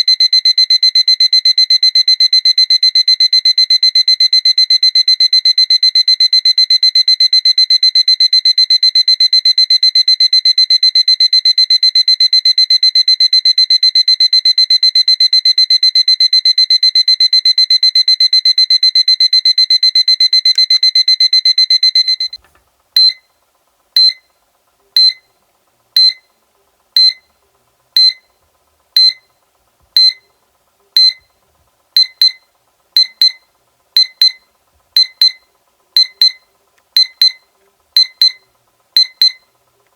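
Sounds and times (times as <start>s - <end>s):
alarm clock beeping: 0.0s - 22.4s, 25.0s - 25.2s, 26.0s - 26.2s, 27.0s - 27.2s, 28.0s - 28.3s, 29.0s - 29.2s, 30.0s - 30.2s, 31.0s - 31.2s, 34.0s - 34.4s, 35.0s - 36.4s, 37.0s - 39.5s.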